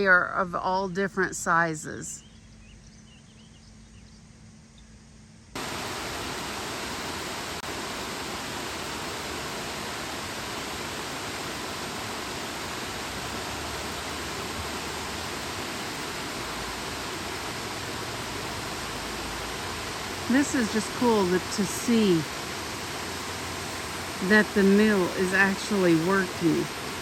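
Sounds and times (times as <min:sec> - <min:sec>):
water rushing at mill: 0:05.6 - 0:27.0.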